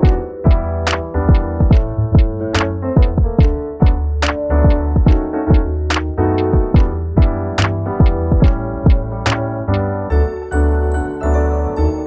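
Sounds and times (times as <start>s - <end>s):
electronic beat: 0.0s - 9.4s
electric piano chords: 0.0s - 12.0s.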